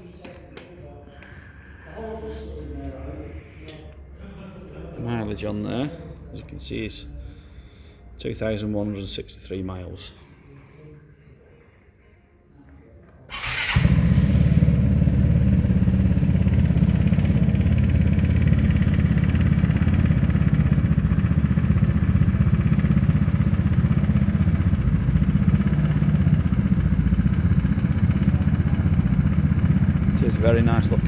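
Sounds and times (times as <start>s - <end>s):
scooter engine idling: 13.3s - 31.0s.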